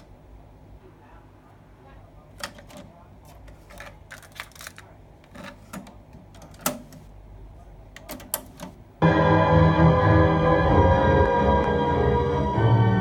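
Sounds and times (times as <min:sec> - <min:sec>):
loud music: 0:09.0 - 0:13.0.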